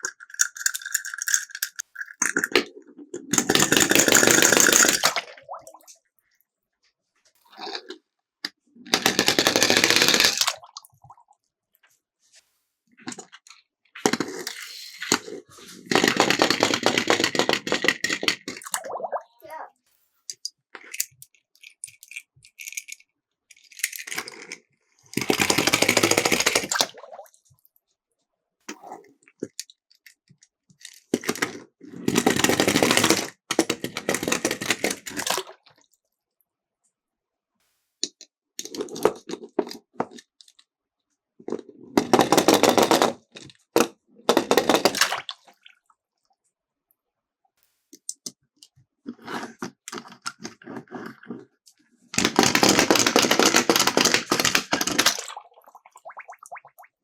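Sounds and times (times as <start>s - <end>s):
toy cars rattling down plastic slope: 0.0s - 5.2s, 8.9s - 10.6s, 13.1s - 18.7s, 20.8s - 26.9s, 30.8s - 35.5s, 41.5s - 45.2s, 52.1s - 55.3s.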